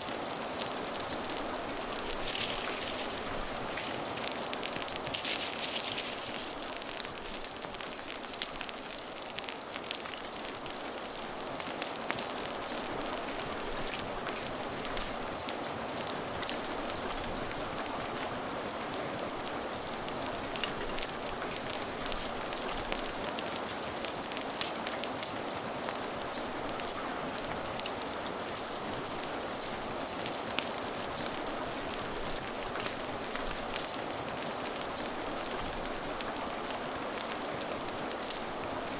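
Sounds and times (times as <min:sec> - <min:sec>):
rain hissing: 0:00.0 - 0:38.9
fire crackling and popping: 0:00.1 - 0:38.9.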